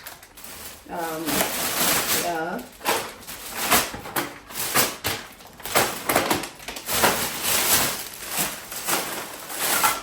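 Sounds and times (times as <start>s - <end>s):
plastic bags rustling and crinkling: 0.0s - 10.0s.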